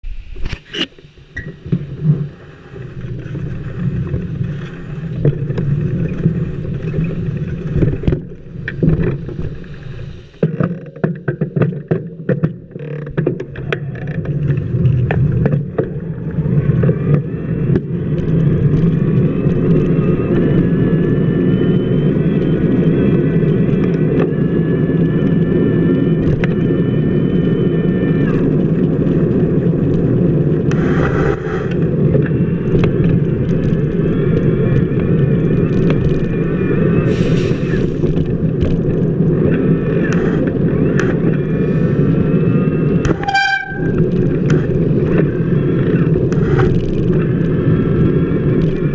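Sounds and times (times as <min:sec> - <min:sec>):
multi-pitched whine: 0:00.0 - 0:48.9
bicycle wheel rolling on wet pavement: 0:01.6 - 0:11.0, 0:12.1 - 0:48.9.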